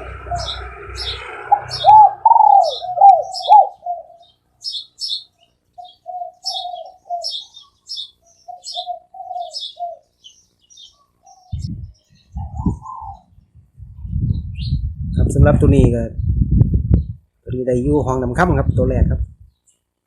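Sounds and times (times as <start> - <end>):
dove cooing: 0.0 - 5.2, 5.8 - 13.4
small birds chirping: 0.0 - 17.8, 18.8 - 20.0
low rumble: 11.6 - 19.5.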